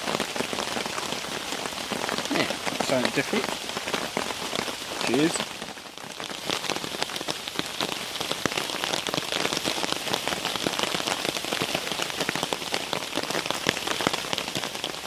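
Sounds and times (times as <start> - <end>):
heavy rain on a tarp: 0.0 - 15.0.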